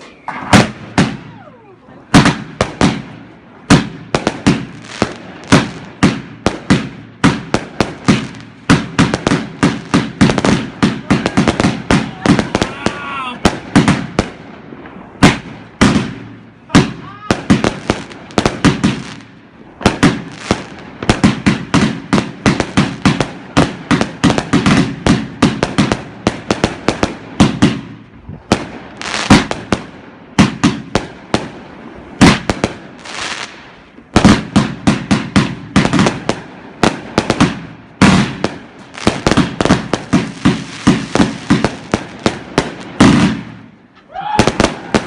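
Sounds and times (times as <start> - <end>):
fireworks firing loud shots: 0.0 - 45.0.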